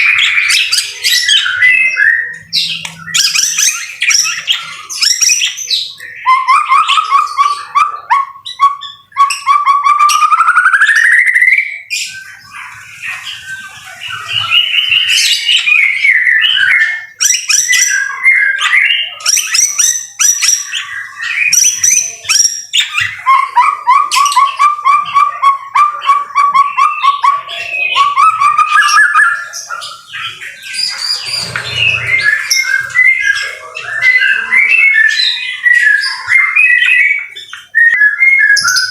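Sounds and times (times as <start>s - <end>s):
bird singing whistled phrases: 0.0s - 12.6s, 13.3s - 38.9s
bird fast trill: 26.0s - 38.9s.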